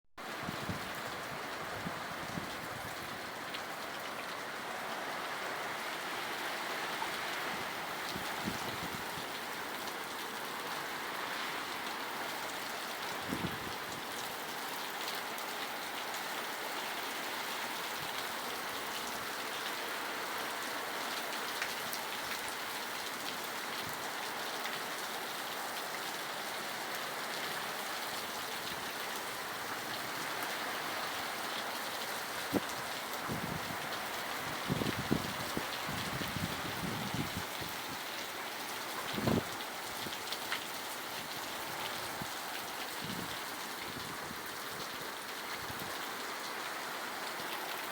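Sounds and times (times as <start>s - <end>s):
heavy rain: 0.2s - 47.9s.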